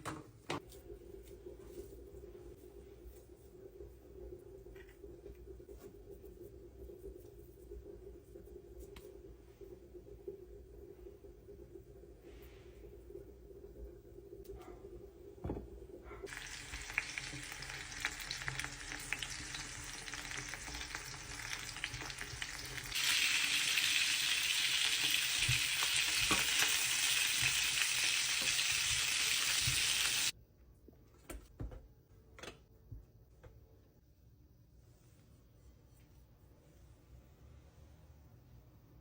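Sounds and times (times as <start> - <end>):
food sizzling in a pan: 16.3 - 30.3.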